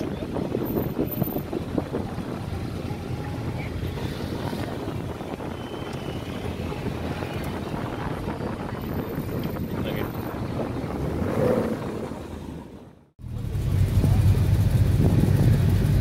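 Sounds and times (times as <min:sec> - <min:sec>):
wind buffeting microphone: 0:00.0 - 0:12.8
car engine idling: 0:13.2 - 0:16.0.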